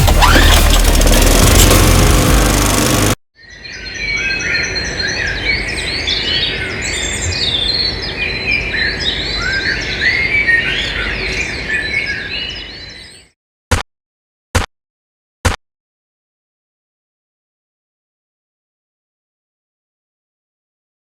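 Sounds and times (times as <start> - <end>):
birds chirping and calling: 3.5 - 13.3.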